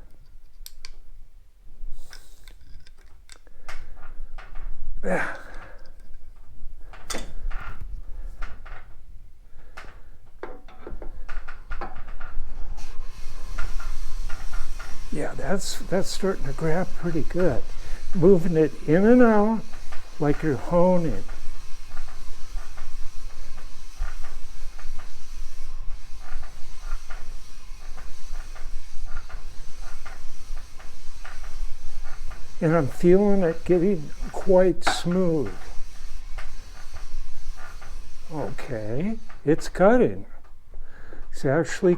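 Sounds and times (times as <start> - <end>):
lapping tool scraping metal: 12.7 - 39.8.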